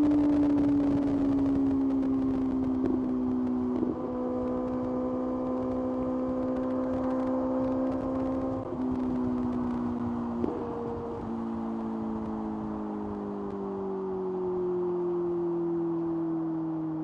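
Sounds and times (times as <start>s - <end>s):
motorcycle engine running: 0.0s - 13.2s.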